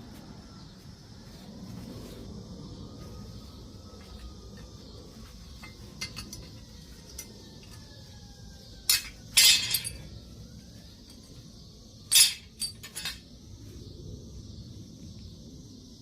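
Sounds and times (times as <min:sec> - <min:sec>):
low background hum: 0:00.0 - 0:16.0
hard objects clinking: 0:12.1 - 0:13.2.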